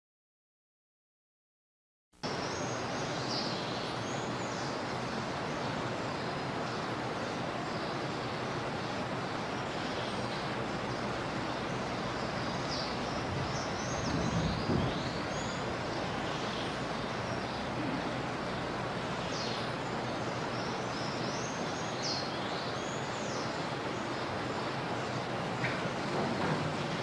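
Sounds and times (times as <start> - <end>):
room recording hiss: 2.2 - 27.0
low bump: 13.1 - 17.1.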